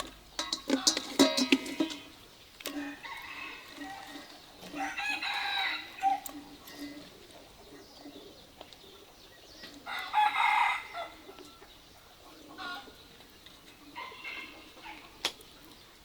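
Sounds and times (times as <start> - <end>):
chicken calls: 0.4 - 16.0
rooster crowing: 2.8 - 6.3, 9.9 - 11.2.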